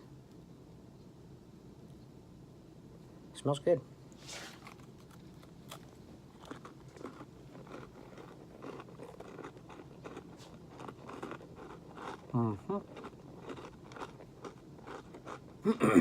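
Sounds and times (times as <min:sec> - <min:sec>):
chewing crunchy granola bar: 0:04.4 - 0:16.0.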